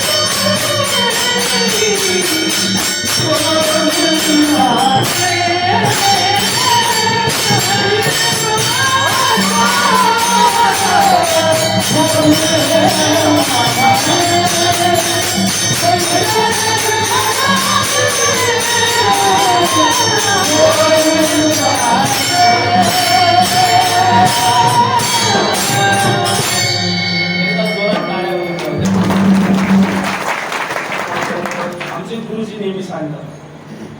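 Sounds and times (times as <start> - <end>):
person singing a melody: 0.0 - 26.8
jingling hand percussion: 0.0 - 32.1.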